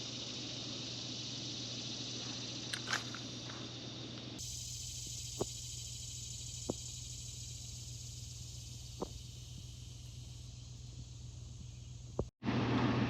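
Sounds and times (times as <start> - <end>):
insects buzzing: 0.0 - 12.8
low steady hum: 3.0 - 13.0.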